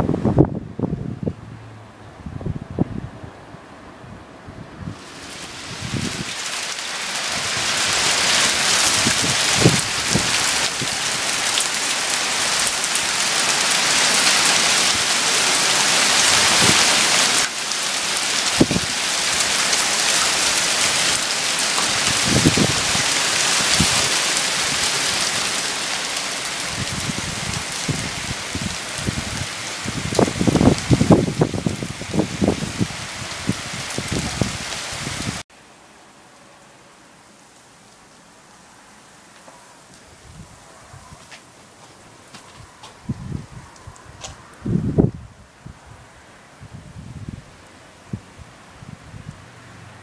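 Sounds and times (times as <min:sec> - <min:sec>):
hail pelting hard surfaces: 0:05.0 - 0:35.4.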